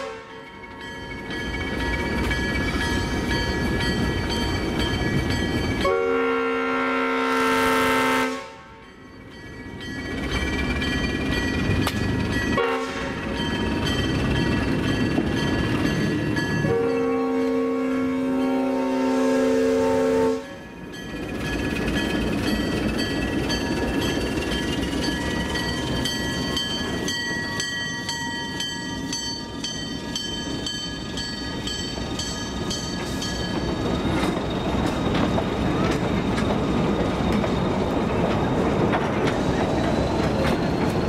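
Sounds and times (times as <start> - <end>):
locomotive horn chord: 0.0 - 0.4, 5.8 - 8.8, 12.6 - 13.3, 16.6 - 20.6
train rumbling past: 0.0 - 41.0
wheels clicking over rail joints: 9.4 - 16.6, 20.8 - 41.0.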